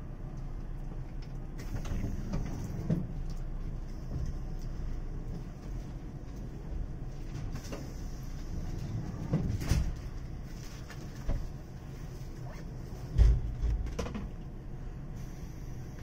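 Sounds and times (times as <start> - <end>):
train humming at platform: 0.0 - 16.0
knocks and clunks: 13.1 - 14.4.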